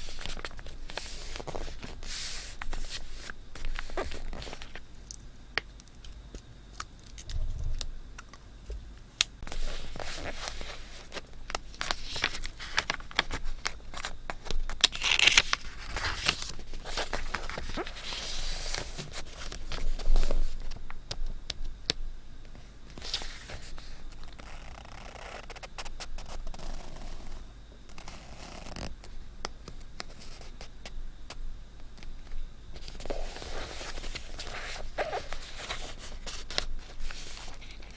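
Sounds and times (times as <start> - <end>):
paper rustling and crinkling: 0.0 - 4.8, 9.4 - 20.9, 22.9 - 26.8, 32.8 - 37.9.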